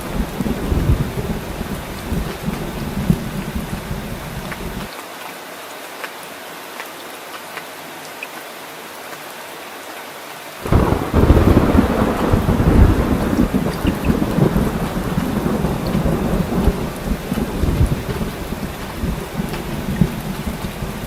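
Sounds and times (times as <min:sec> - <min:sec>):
loud thunderclap: 0:00.0 - 0:04.9, 0:10.6 - 0:21.0
low thunder rumble: 0:00.0 - 0:04.9, 0:10.6 - 0:21.0
raindrop ticks: 0:00.0 - 0:05.0, 0:10.6 - 0:21.0
rain hiss: 0:00.0 - 0:21.0.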